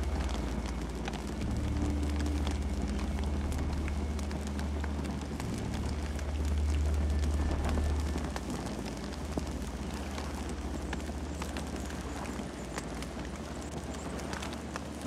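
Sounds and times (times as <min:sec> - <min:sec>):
campfire crackling and popping: 0:00.0 - 0:15.0
low fire rumble: 0:00.0 - 0:15.0.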